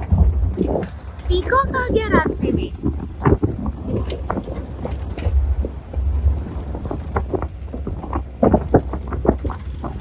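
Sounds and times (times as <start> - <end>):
vehicle engine rumbling: 0.0 - 10.0
wind buffeting microphone: 0.0 - 10.0.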